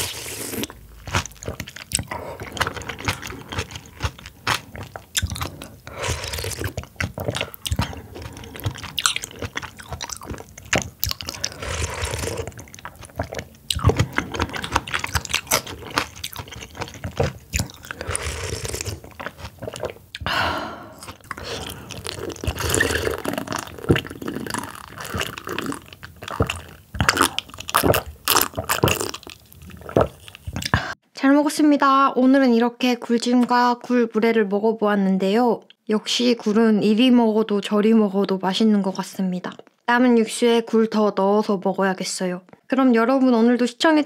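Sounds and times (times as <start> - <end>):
person chewing and crunching: 0.0 - 31.0.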